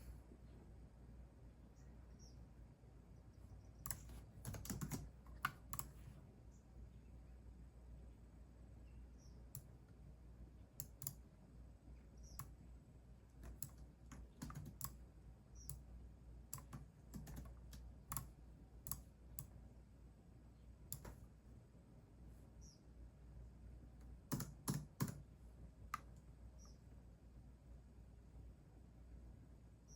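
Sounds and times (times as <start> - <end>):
faint keyboard typing: 3.7 - 6.2, 9.5 - 10.0, 10.7 - 11.4, 12.2 - 12.6, 13.3 - 19.6, 20.9 - 21.4, 24.0 - 26.8.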